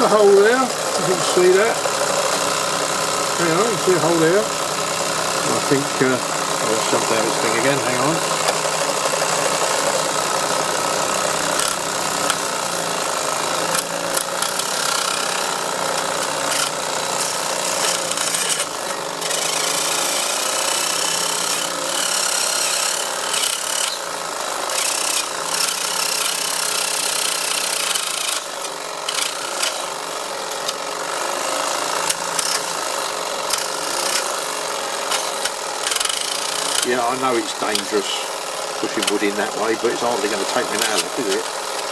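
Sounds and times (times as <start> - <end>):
saw rasping on wood: 0.0 - 41.9
toy steam engine running: 0.0 - 41.9.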